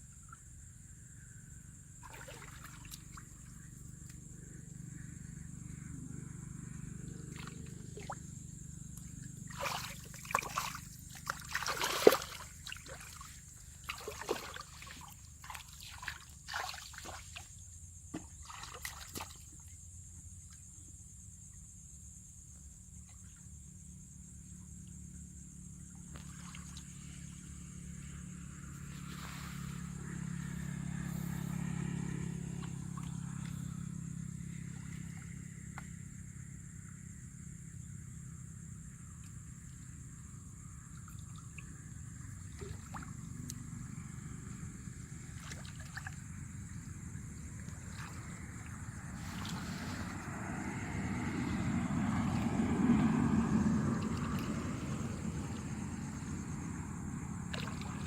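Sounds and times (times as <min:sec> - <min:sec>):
water splashing and trickling: 0:02.0 - 0:04.0, 0:07.3 - 0:08.3, 0:08.9 - 0:19.8, 0:40.9 - 0:43.6, 0:45.1 - 0:56.5, 0:57.4 - 0:58.0
low hum: 0:27.1 - 0:36.6.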